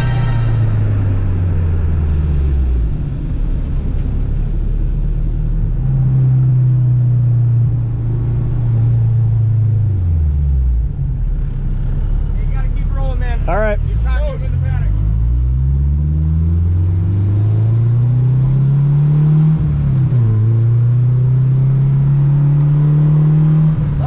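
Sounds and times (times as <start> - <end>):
car engine running: 7.1 - 18.6.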